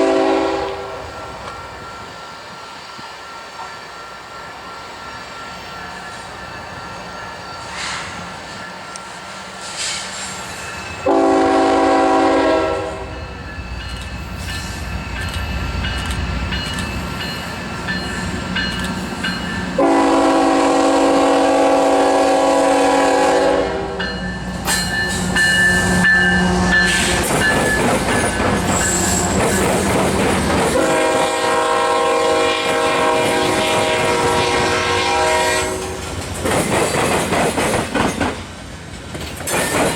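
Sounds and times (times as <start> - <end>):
train air horn blasts: 0.0 - 1.4, 11.0 - 13.2, 19.8 - 24.2, 25.8 - 27.3, 30.7 - 36.1
train wheels on rails: 0.0 - 39.9
locomotive engine: 12.6 - 22.7.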